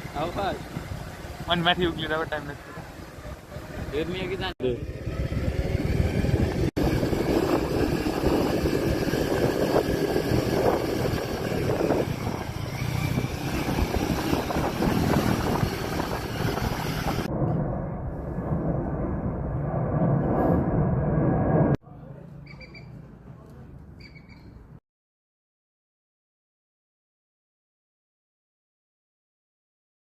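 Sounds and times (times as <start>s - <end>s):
wind noise on microphone: 0.0s - 2.0s, 5.0s - 21.8s
motorcycle engine running: 0.0s - 17.3s.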